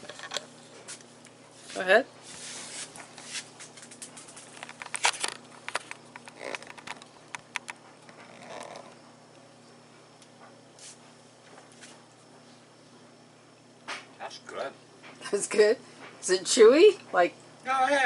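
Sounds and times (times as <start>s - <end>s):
small clicks and crackles: 3.6s - 9.0s.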